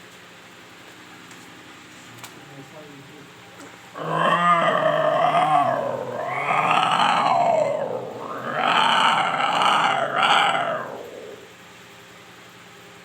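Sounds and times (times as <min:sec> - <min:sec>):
man growling like a leopard: 0:04.0 - 0:11.5.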